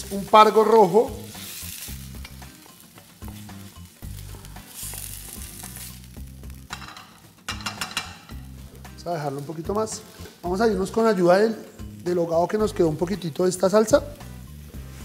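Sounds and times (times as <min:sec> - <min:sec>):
fish sizzling in a pan: 0:00.0 - 0:15.0.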